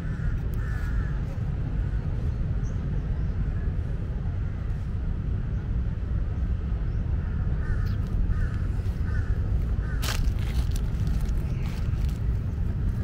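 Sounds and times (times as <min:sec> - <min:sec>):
low rumble: 0:00.0 - 0:13.0
bird calling: 0:07.2 - 0:12.4.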